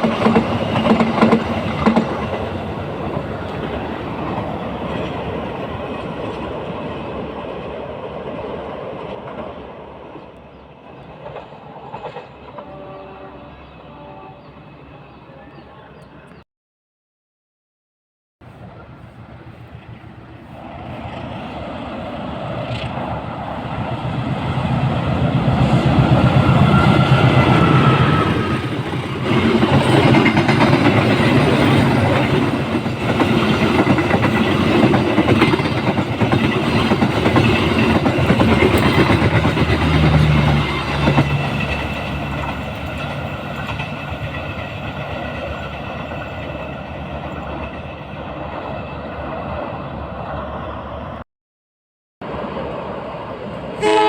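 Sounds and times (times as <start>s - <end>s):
train wheels clattering on rails: 0.0s - 9.7s, 20.6s - 48.8s.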